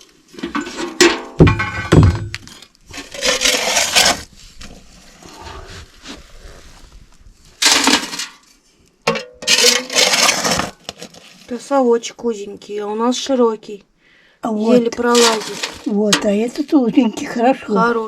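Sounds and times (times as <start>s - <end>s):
scoop scraping ash: 2.9s - 6.6s, 9.4s - 11.6s, 14.6s - 16.6s.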